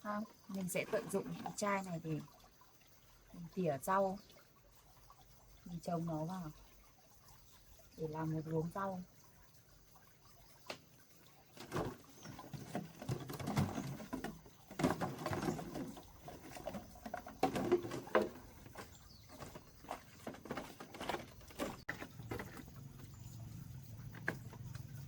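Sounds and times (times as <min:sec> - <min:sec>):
plastic bottle crinkling: 0:11.6 - 0:22.7
scratching: 0:11.6 - 0:22.8.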